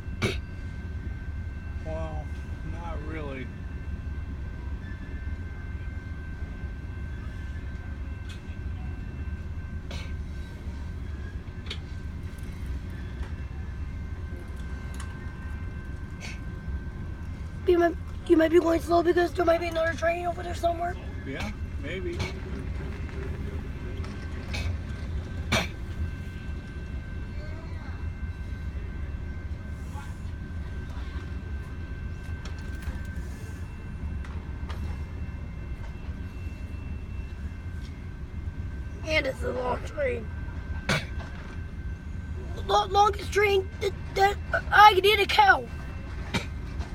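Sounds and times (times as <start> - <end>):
faint steady high tones: 0.0 - 46.9
freight train rumbling: 0.0 - 46.9
short clicks of train: 11.6 - 13.4.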